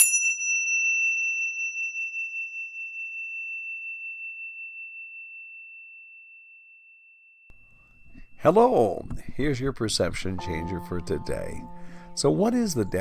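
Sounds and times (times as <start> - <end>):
high pure chime ringing: 0.0 - 7.6.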